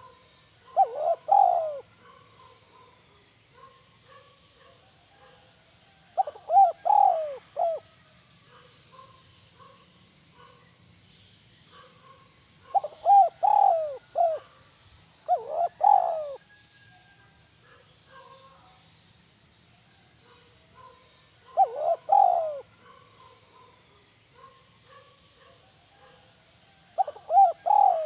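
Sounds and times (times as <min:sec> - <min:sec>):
dove cooing: 0:00.0 - 0:05.4, 0:06.1 - 0:09.1, 0:11.8 - 0:14.6, 0:15.2 - 0:16.6, 0:20.8 - 0:23.8, 0:26.8 - 0:28.0
small birds chirping: 0:00.0 - 0:05.5, 0:06.1 - 0:16.4, 0:17.5 - 0:28.0.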